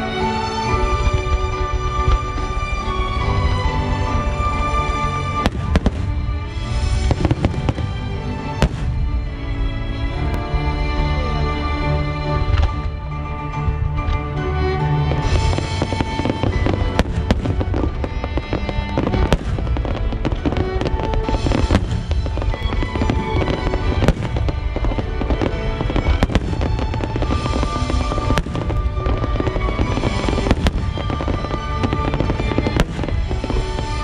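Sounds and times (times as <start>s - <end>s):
firework crackling and rumble: 0.0s - 13.0s, 15.0s - 34.0s
music with sustained tones: 0.0s - 34.0s
firework shells bursting: 15.2s - 34.0s.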